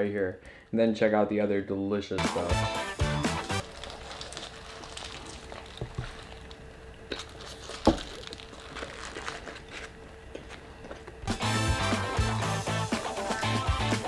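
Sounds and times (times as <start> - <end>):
faint steady hum: 0.0 - 2.2, 3.6 - 13.3
person chewing food: 3.6 - 11.1.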